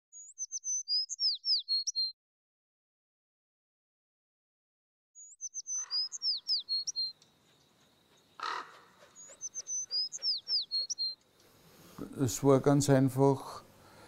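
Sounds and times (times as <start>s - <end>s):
songbird whistling: 0.1s - 2.1s, 5.2s - 11.2s.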